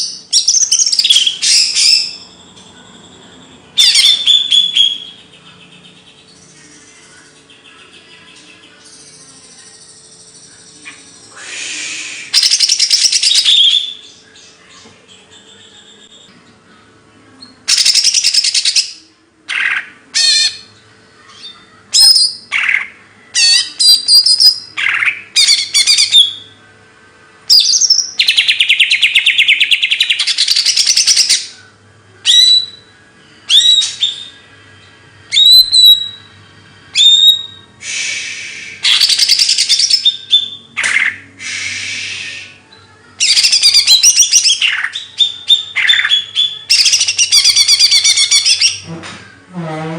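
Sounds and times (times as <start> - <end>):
songbird singing trills: 0.0 - 16.3, 17.4 - 26.6, 27.5 - 32.9, 33.5 - 48.9
sharp whistled bird notes: 37.0 - 42.6.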